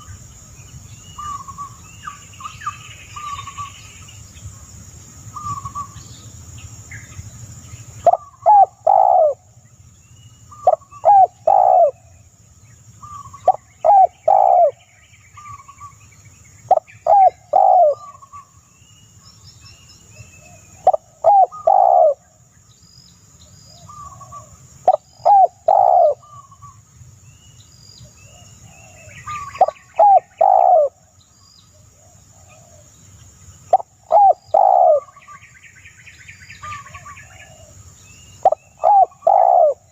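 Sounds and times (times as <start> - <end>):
faint bird chirps: 0.0 - 4.6, 5.3 - 39.9
bird calling loudly: 8.0 - 9.4, 10.5 - 12.1, 13.0 - 16.0, 16.7 - 18.6, 20.8 - 22.2, 23.8 - 26.8, 28.8 - 31.0, 33.7 - 35.6, 38.3 - 39.9.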